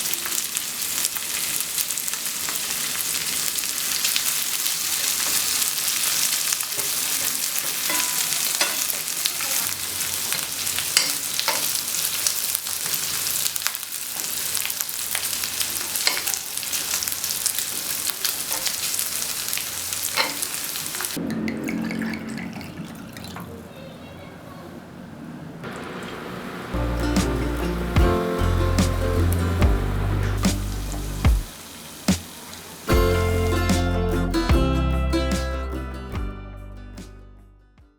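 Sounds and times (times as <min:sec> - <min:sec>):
meat sizzling on a grill pan: 0:00.0 - 0:21.2, 0:26.8 - 0:33.0.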